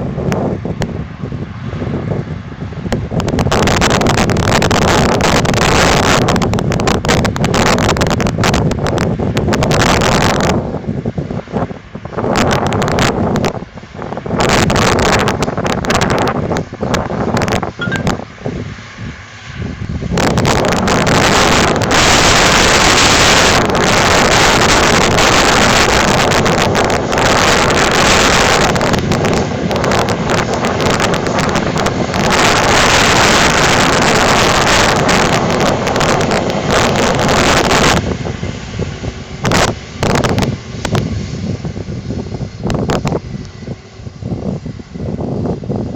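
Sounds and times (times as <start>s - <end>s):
tractor engine drone: 0.0s - 45.9s
wind buffeting microphone: 0.0s - 45.9s.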